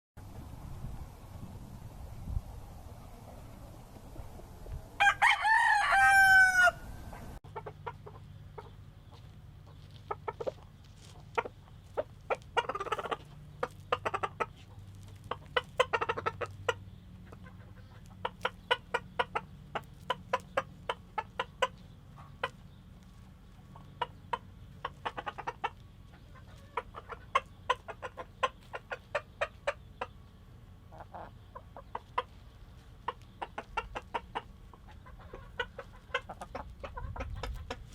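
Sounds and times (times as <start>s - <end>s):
rooster clucking: 4.0s - 37.9s
rooster crowing: 5.0s - 7.3s.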